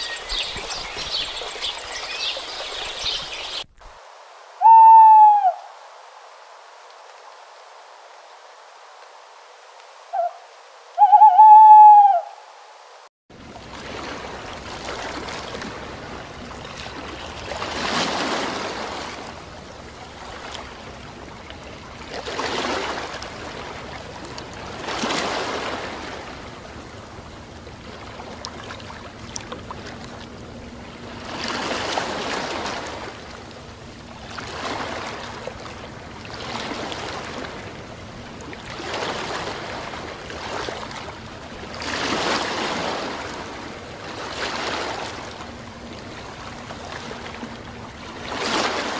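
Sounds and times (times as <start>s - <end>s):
waves washing onto beach: 12.9s - 48.9s.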